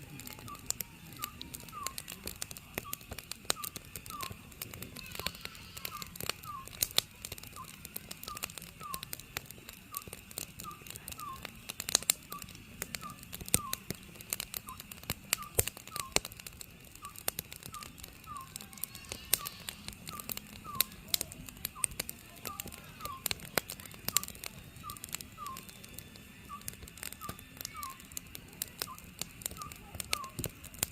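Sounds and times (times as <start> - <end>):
firewood crackling: 0.0 - 30.9
owl whistled hoots: 0.4 - 2.2, 2.8 - 4.4, 5.0 - 6.8, 7.5 - 9.1, 9.9 - 11.5, 12.3 - 14.0, 15.4 - 16.2, 17.0 - 21.0, 21.8 - 23.4, 24.1 - 25.7, 26.4 - 28.1, 28.8 - 30.5.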